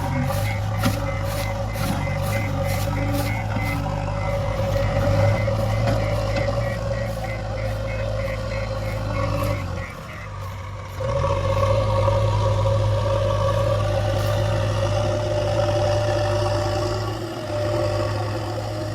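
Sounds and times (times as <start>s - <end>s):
reversing alarm beeping: 0.0s - 11.7s
diesel engine running: 0.0s - 18.9s.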